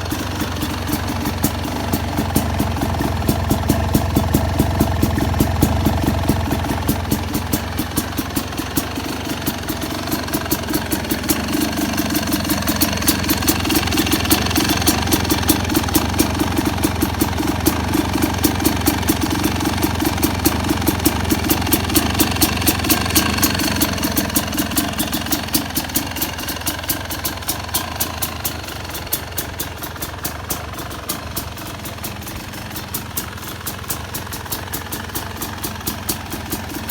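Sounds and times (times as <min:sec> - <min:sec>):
two-stroke engine idling with crackles: 0:00.0 - 0:36.9.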